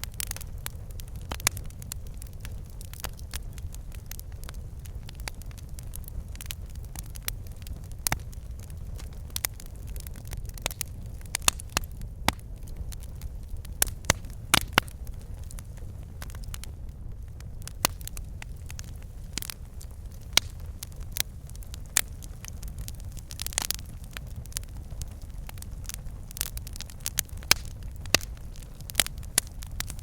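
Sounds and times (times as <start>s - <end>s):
logs crackling and popping: 0.0s - 30.0s
low rumble of flame: 0.0s - 30.0s.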